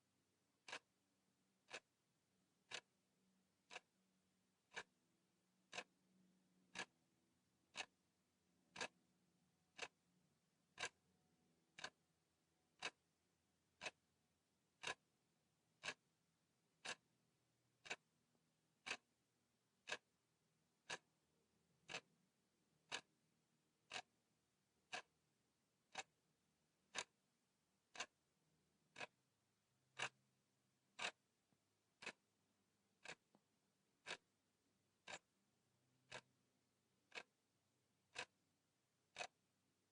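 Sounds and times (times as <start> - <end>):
timer ticking: 0.6 - 1.0, 1.6 - 1.9, 2.6 - 3.0, 3.6 - 4.0, 4.6 - 7.0, 7.6 - 8.0, 8.6 - 9.0, 9.6 - 10.1, 10.7 - 11.1, 11.7 - 13.1, 13.7 - 14.1, 14.8 - 15.1, 15.8 - 16.1, 16.8 - 17.2, 17.8 - 18.2, 18.8 - 19.2, 19.8 - 20.2, 20.8 - 22.1, 22.8 - 23.2, 23.8 - 24.2, 24.8 - 25.2, 25.8 - 26.2, 26.8 - 28.3, 28.9 - 29.3, 29.9 - 30.3, 30.9 - 31.2, 32.0 - 32.3, 33.0 - 33.4, 34.0 - 35.4, 36.0 - 36.4, 37.0 - 37.4, 38.0 - 38.4, 39.0 - 39.5.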